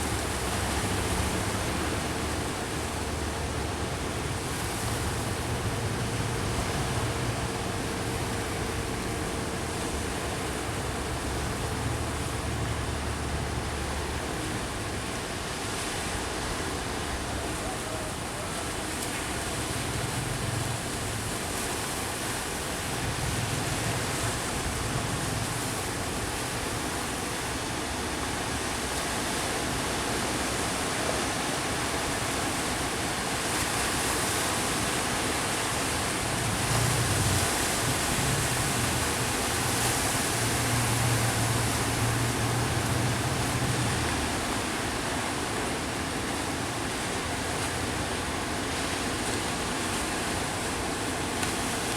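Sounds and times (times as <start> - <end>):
sea waves washing in: 0.0 - 51.9.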